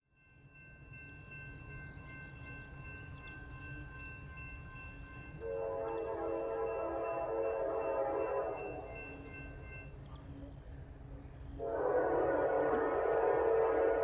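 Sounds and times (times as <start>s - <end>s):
diesel train engine rumble: 0.3s - 14.0s
locomotive air horn: 5.4s - 8.8s, 11.6s - 14.0s.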